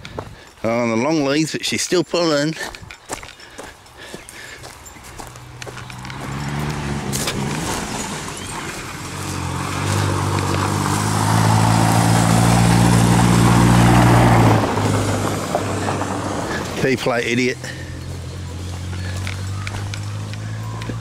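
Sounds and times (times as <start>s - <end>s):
truck engine revving high: 5.2s - 21.0s.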